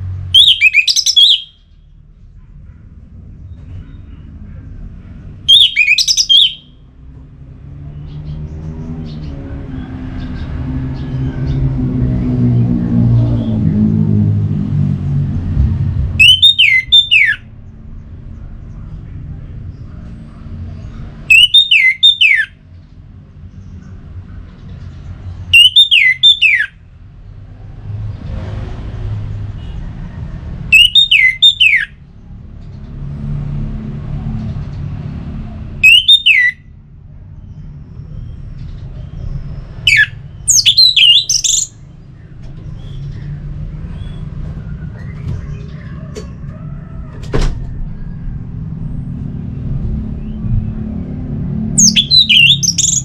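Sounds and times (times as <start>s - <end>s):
bird calling loudly: 0.3s - 1.8s, 5.5s - 6.8s, 16.2s - 17.5s, 21.3s - 22.5s, 25.5s - 26.8s, 30.7s - 32.0s, 35.8s - 36.6s, 39.8s - 41.8s, 51.8s - 53.0s
steady low rumble: 11.0s - 16.4s, 41.7s - 52.2s.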